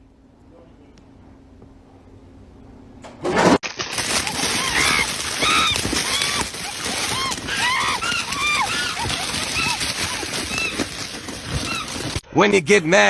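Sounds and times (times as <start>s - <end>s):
birds calling: 4.0s - 12.2s.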